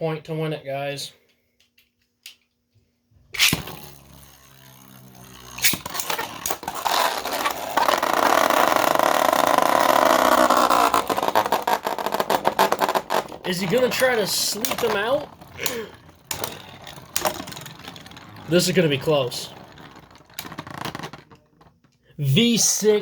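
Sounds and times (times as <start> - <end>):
spinning tops clashing and rattling: 3.4 - 21.2
spinning top whirring: 3.4 - 21.3.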